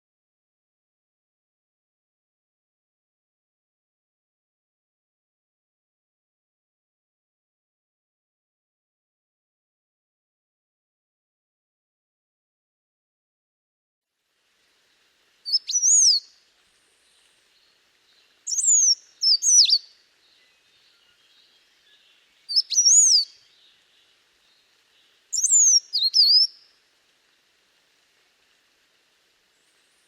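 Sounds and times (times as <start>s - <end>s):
songbird whistling: 15.5s - 16.3s, 18.5s - 23.7s, 25.3s - 26.6s.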